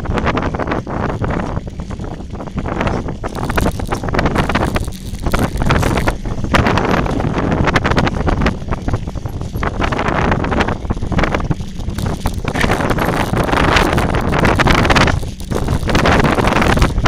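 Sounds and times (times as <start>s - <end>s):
wind buffeting microphone: 0.0s - 17.0s
bike clattering on dirt trail: 3.2s - 6.2s, 11.4s - 17.0s.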